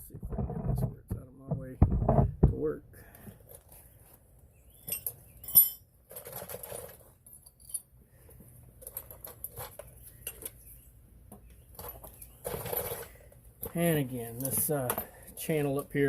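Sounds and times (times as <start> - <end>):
metal tools clinking: 4.8 - 7.9, 11.8 - 15.9.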